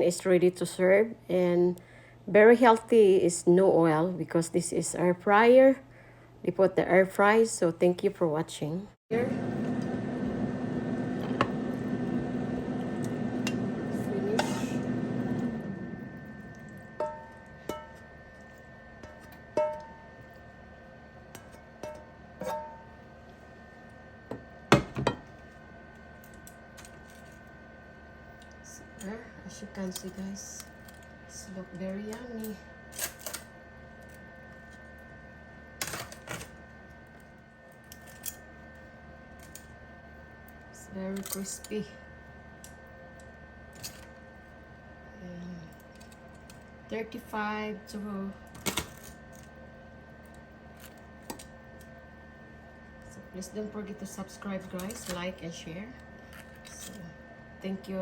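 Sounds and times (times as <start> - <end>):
appliance fan humming: 0.0 - 58.0.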